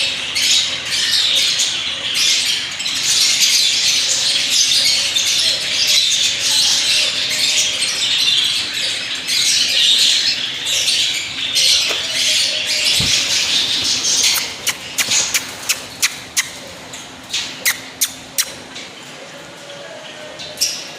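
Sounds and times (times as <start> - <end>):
parrot squawking: 11.6 - 16.6, 17.6 - 18.6.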